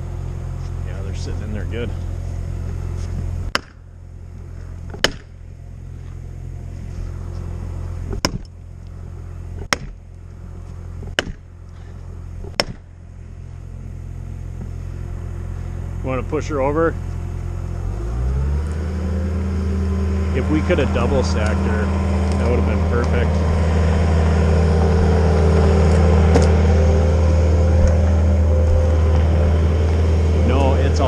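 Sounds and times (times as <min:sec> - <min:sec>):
engine running: 0:00.0 - 0:31.0
wedges pounded into tree: 0:04.9 - 0:05.3, 0:08.1 - 0:08.5, 0:09.6 - 0:10.0, 0:11.0 - 0:11.5, 0:12.4 - 0:12.9.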